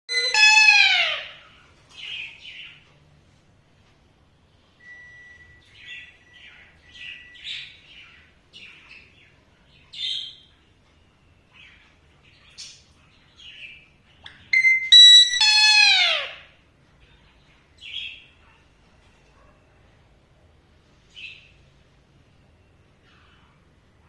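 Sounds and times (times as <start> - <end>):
parakeet chirping and squeaking: 0.1 - 1.3, 14.4 - 16.4.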